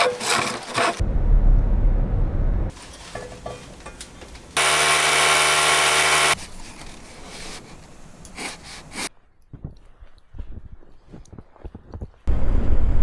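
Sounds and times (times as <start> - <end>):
scraping: 0.0 - 1.0, 2.7 - 9.1
power tool running: 2.7 - 9.1.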